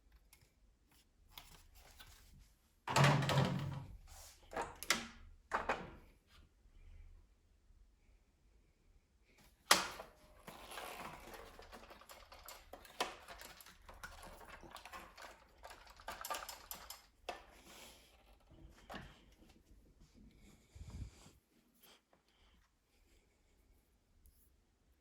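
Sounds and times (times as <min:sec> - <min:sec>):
small hard parts clicking and rattling: 0:09.7 - 0:19.1.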